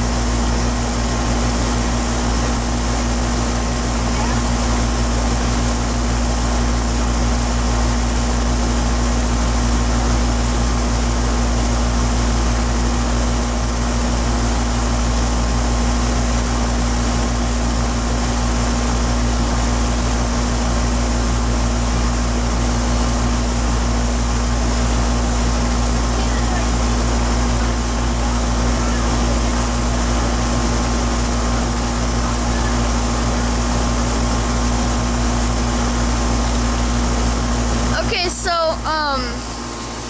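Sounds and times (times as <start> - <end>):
air conditioner humming: 0.0 - 40.0.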